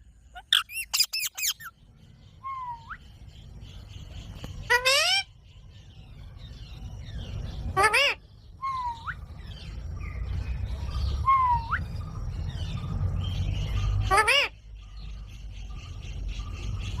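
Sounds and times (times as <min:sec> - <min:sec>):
parrot screeching: 0:00.4 - 0:01.7
parrot whistle: 0:00.4 - 0:01.7, 0:11.2 - 0:11.9
low rumble: 0:01.6 - 0:17.0.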